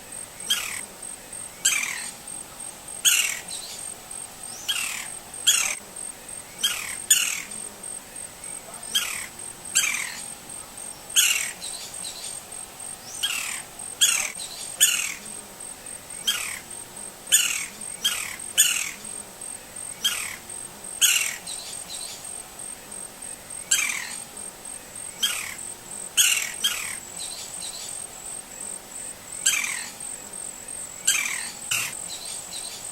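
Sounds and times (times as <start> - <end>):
high insect trill: 0.0 - 32.9
woodpecker calling: 0.4 - 0.8, 1.5 - 2.2, 3.0 - 5.8, 6.5 - 7.7, 8.4 - 10.3, 11.1 - 12.4, 13.0 - 15.4, 16.1 - 19.2, 19.8 - 22.3, 23.6 - 24.3, 25.0 - 28.1, 29.3 - 30.1, 30.7 - 32.9.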